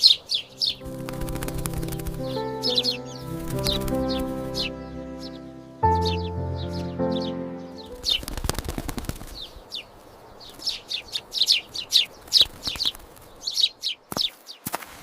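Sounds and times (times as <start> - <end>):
small birds chirping: 0.0 - 14.7
background music: 0.3 - 8.8.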